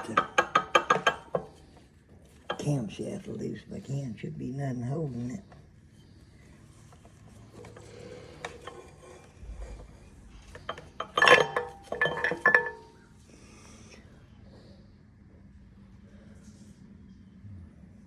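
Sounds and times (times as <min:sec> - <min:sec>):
loud ringing metal clanks: 0:00.0 - 0:01.7, 0:07.5 - 0:13.1
metal parts clinking and rattling: 0:00.0 - 0:02.8, 0:06.7 - 0:13.0.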